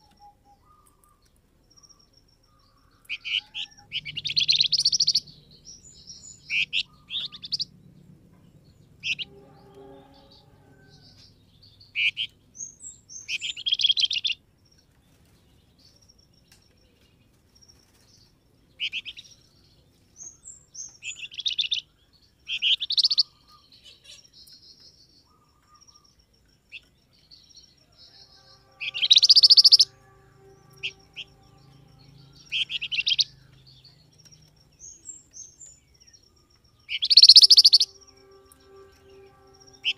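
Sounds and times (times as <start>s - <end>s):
thin high bird notes: 28.1s - 34.5s, 37.0s - 39.9s
songbird rattling chirps: 28.4s - 39.9s.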